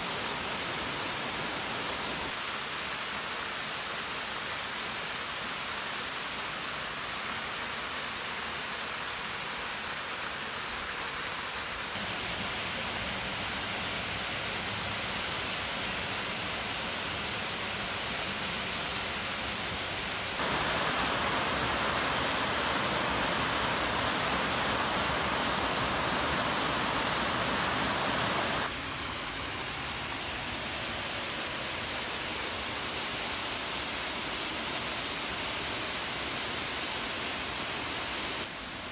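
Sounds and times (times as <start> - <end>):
waterfall rushing: 0.0 - 2.4, 12.0 - 38.9.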